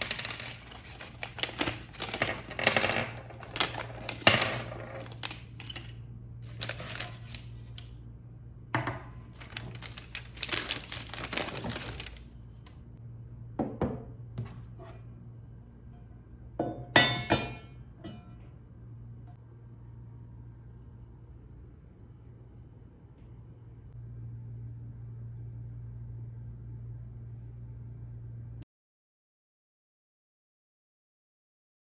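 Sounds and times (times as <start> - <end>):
objects clinking and knocking: 0.0 - 6.0
low steady hum: 0.0 - 28.6.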